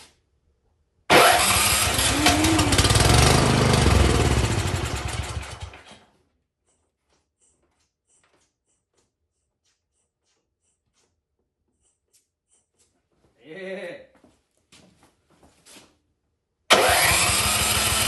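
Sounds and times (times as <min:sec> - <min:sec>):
small gas engine running: 0:01.1 - 0:05.9, 0:16.7 - 0:18.0.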